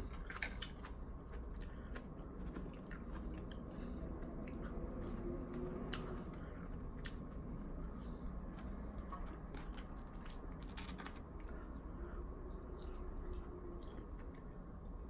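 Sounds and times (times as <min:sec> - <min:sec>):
chewing fried food: 0:00.0 - 0:15.0.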